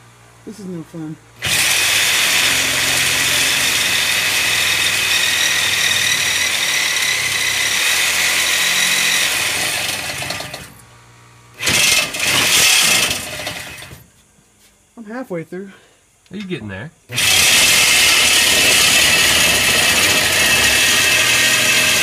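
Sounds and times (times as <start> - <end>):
reciprocating saw cutting metal pipe: 1.4 - 10.7, 11.6 - 14.0, 17.1 - 22.0.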